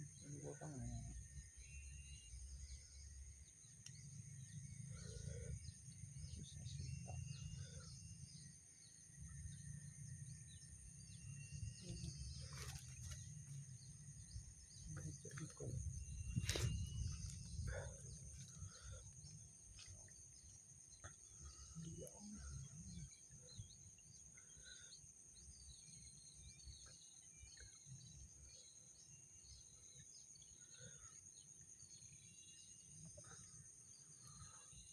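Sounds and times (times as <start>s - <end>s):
insects droning: 0.0s - 34.9s
low rumble on microphone: 10.1s - 20.2s.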